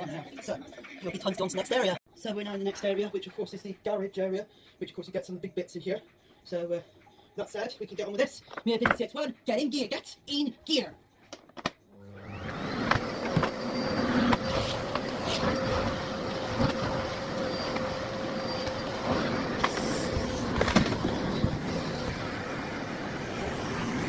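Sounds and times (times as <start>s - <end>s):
vacuum cleaner motor whine: 12.0s - 24.0s.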